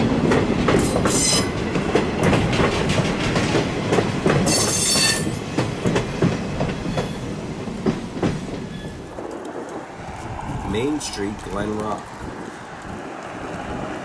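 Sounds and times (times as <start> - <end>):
train wheels clicking over rail joints: 0.0 - 9.9.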